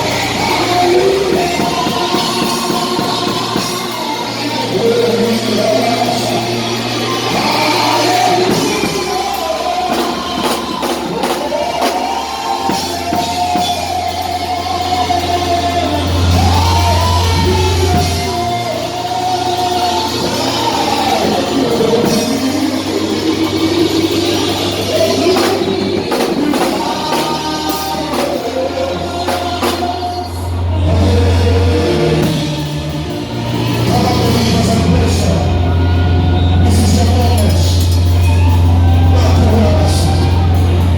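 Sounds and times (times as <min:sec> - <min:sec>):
bass-heavy band music: 0:00.0 - 0:40.9
people singing: 0:00.0 - 0:40.9
people shouting: 0:34.3 - 0:40.9.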